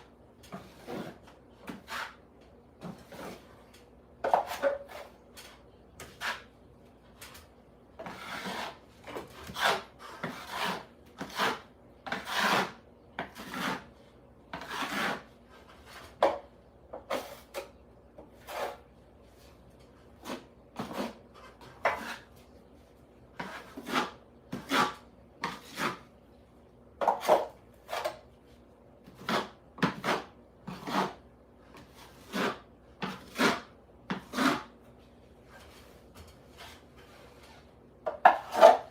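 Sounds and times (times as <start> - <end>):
hand tool rasping on hard surface: 8.0 - 13.9, 14.5 - 15.3, 29.2 - 31.2, 32.1 - 34.7.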